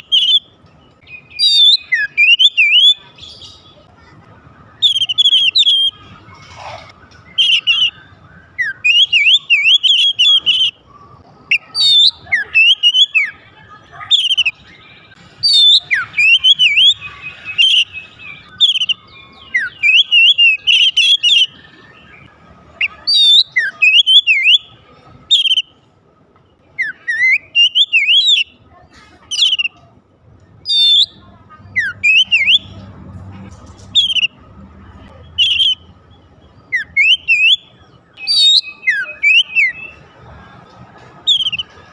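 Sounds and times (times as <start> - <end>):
bird singing whistled phrases: 0.0 - 3.9, 4.7 - 6.2, 7.1 - 10.8, 11.5 - 25.7, 26.8 - 28.6, 29.3 - 29.8, 30.6 - 32.8, 33.9 - 34.4, 35.2 - 35.9, 36.5 - 40.0, 41.3 - 41.8.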